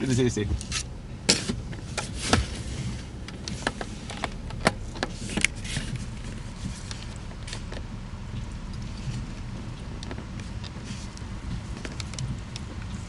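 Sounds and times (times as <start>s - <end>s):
wind rumble on microphone: 0.0s - 13.0s
sharp clicks and knocks: 3.2s - 13.0s.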